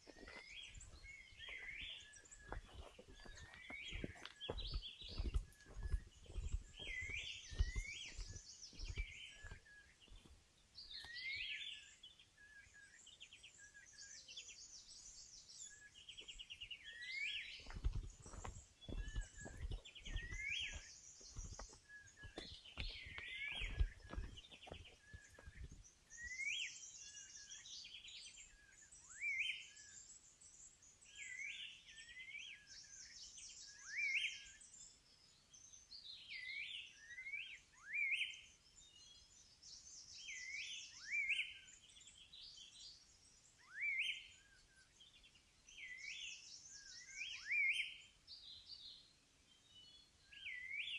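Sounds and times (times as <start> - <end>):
songbird singing: 0.0 - 50.9
low thumps: 3.9 - 9.6.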